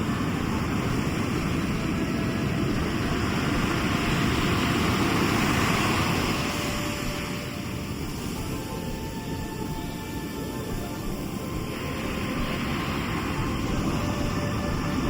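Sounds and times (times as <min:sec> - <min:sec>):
sea waves breaking: 0:00.0 - 0:15.0.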